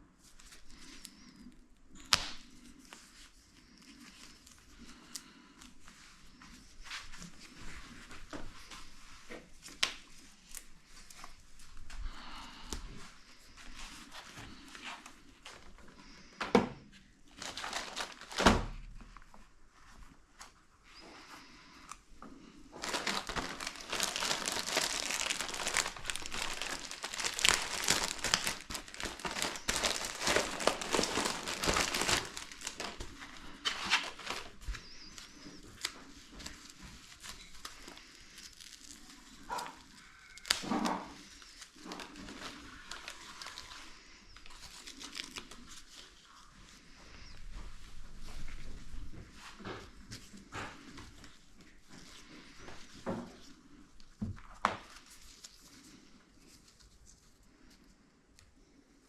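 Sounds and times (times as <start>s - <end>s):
material crinkling and tearing: 0.2s - 5.7s, 17.2s - 19.4s, 22.7s - 47.4s, 50.1s - 57.9s.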